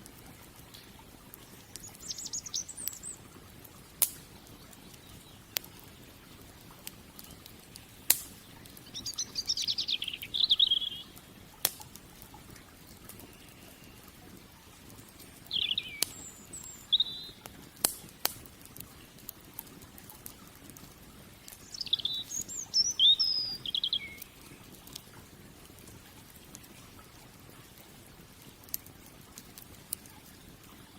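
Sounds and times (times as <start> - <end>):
campfire crackling pops: 0.0 - 30.9
songbird chirping: 0.8 - 3.4, 4.3 - 6.3, 7.2 - 11.2, 13.1 - 14.2, 15.2 - 17.4, 21.5 - 24.8.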